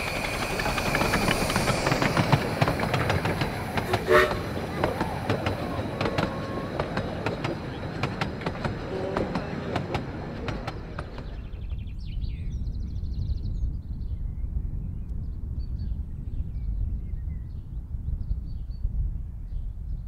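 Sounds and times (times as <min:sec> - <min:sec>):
train wheels clicking and rattling: 0:00.0 - 0:11.7
birdsong: 0:00.0 - 0:18.9
wind rumble on microphone: 0:10.2 - 0:20.0.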